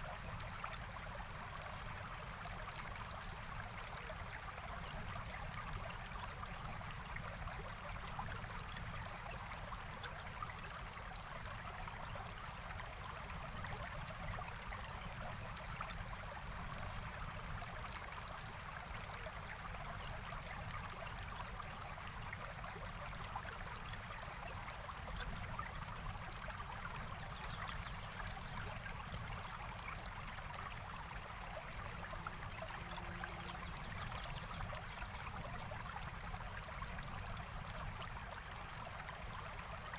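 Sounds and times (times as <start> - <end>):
stream flowing over stones: 15.3 - 39.9.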